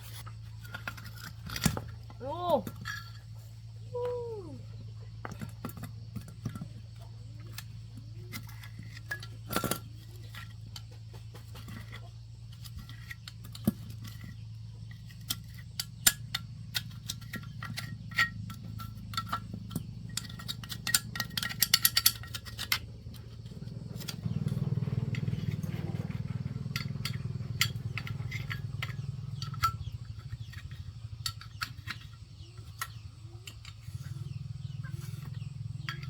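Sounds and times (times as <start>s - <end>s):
steady low hum: 0.0s - 36.0s
light metallic clinks: 15.0s - 36.0s.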